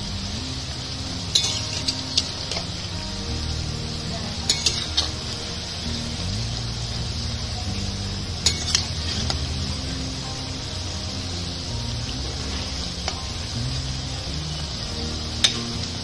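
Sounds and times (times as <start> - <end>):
dough sizzling in hot oil: 0.0 - 16.0
metal spatula clinking on pan: 1.4 - 2.6, 4.5 - 5.1, 8.4 - 8.9.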